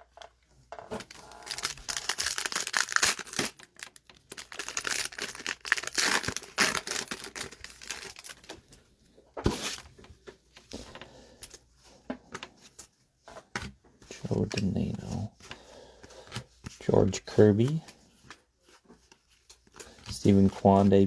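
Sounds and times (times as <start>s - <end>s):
cards being handled: 0.9s - 8.6s, 12.3s - 21.0s
foil wrapper crinkling: 0.9s - 8.8s.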